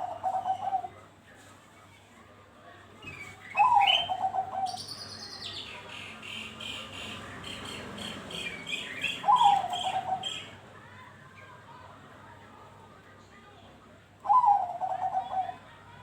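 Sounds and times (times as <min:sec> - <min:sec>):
dove rolling coo: 0:00.0 - 0:00.9, 0:03.6 - 0:04.8, 0:09.2 - 0:10.4, 0:14.2 - 0:15.7.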